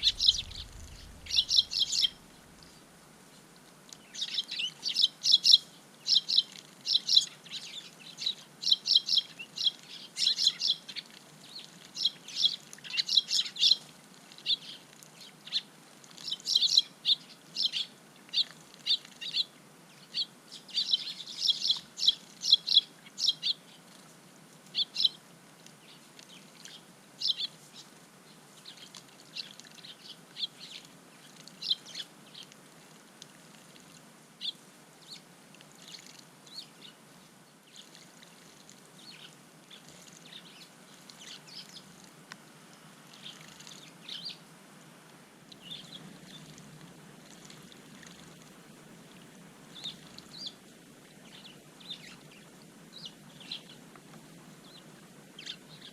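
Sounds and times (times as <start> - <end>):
sparrows chirping: 0.0 - 2.8, 4.1 - 13.8, 14.4 - 23.7, 43.2 - 44.4, 45.6 - 46.6, 47.5 - 50.6, 51.3 - 52.4, 55.4 - 55.9.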